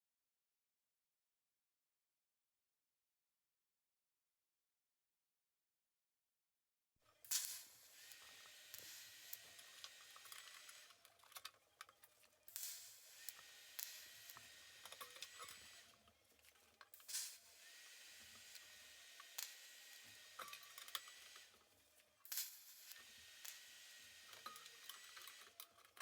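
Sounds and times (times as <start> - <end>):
welding arc hissing: 7.3 - 10.9, 12.5 - 16.0, 17.0 - 21.6, 22.3 - 24.4.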